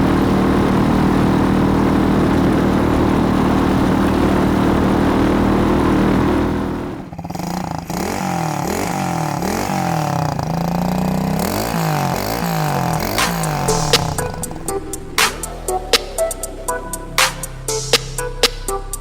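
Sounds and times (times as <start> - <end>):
motorbike engine running: 0.0 - 19.0
electronic music with wobbling bass: 12.3 - 19.0.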